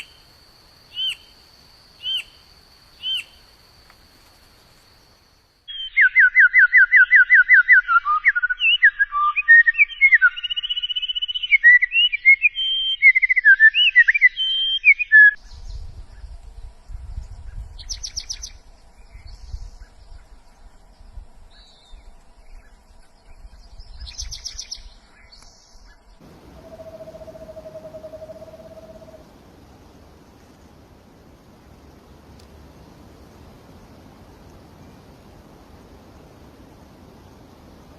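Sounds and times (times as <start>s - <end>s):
songbird singing trills and whistles: 0.9s - 1.3s, 2.0s - 2.4s, 3.0s - 3.4s, 5.7s - 16.4s, 17.1s - 20.3s, 21.5s - 29.2s.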